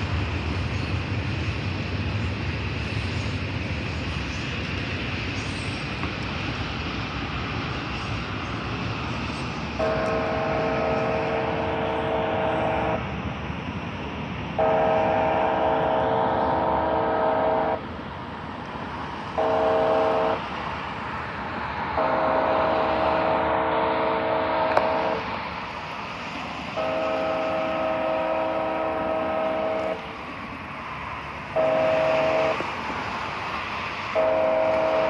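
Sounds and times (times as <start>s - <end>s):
train rumble: 0.0s - 35.0s
locomotive air horn: 9.8s - 13.0s, 14.6s - 17.8s, 19.3s - 20.5s, 21.9s - 25.3s, 26.7s - 30.2s, 31.5s - 32.8s, 34.1s - 35.0s.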